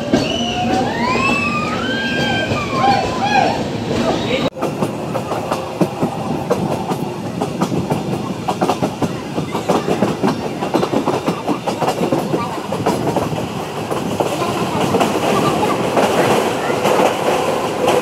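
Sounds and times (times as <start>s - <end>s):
train wheels clattering over rail joints: 3.9s - 18.0s.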